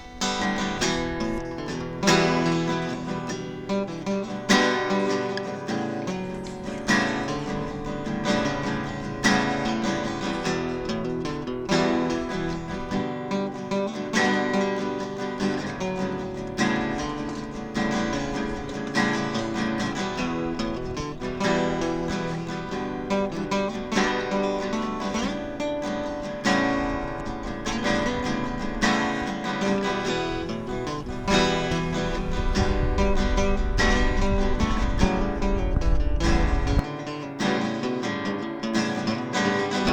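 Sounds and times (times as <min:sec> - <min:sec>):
strummed acoustic guitar: 0:00.0 - 0:39.9
heavy low end: 0:29.5 - 0:36.8.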